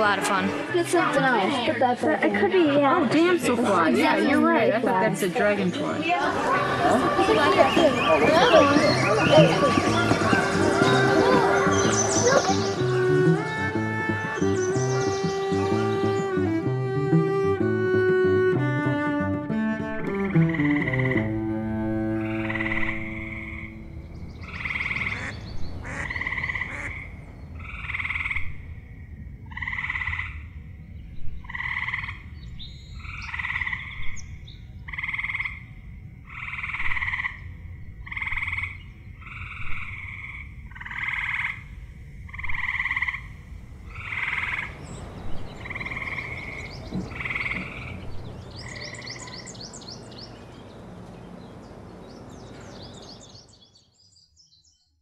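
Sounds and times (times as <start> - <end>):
bird chirps: 7.5 - 16.5, 22.2 - 27.6, 43.9 - 55.0
frogs trilling: 20.2 - 21.2, 22.2 - 50.4.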